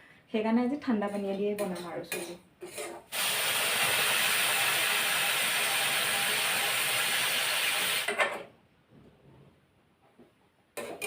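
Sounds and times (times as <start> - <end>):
water sizzling in hot ghee: 3.1 - 8.1.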